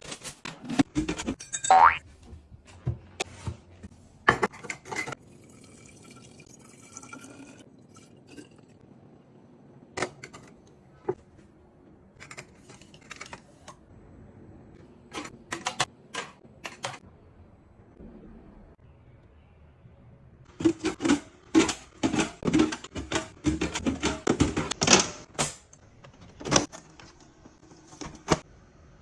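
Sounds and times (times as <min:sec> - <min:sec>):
liquid pouring into container: 0:05.2 - 0:08.8
containers clicking and knocking: 0:20.6 - 0:25.4.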